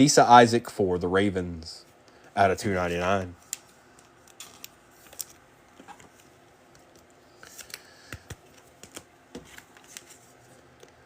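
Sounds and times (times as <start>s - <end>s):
cards clicking and tapping: 3.5s - 10.2s.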